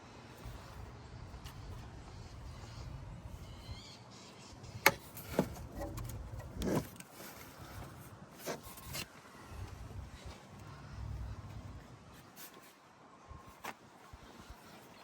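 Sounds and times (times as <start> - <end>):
faint chirp: 0.5 - 4.9.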